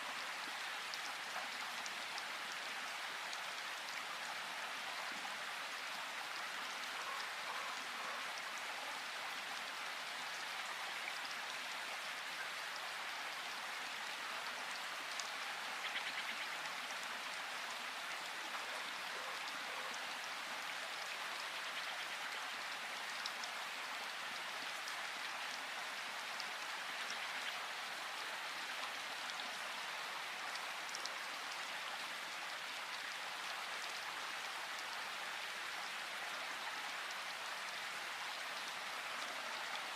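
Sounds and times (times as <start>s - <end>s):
rain falling in forest: 0.0s - 39.9s.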